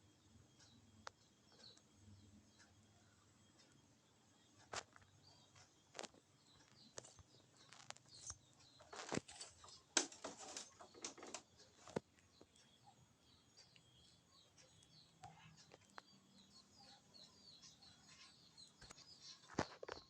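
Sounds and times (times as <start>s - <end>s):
faint high chirps: 0.0s - 20.0s
rustling: 7.0s - 12.0s
clicks and taps: 8.8s - 12.6s.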